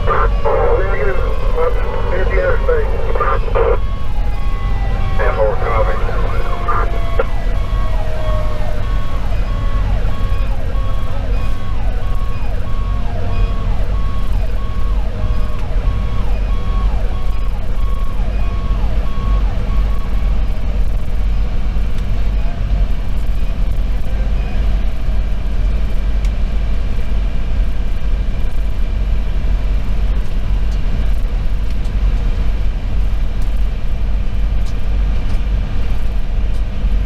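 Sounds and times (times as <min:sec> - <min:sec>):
siren tone falling in pitch: 0:00.0 - 0:20.5
electronic siren: 0:00.0 - 0:21.6
engine and road rumble: 0:00.0 - 0:37.0.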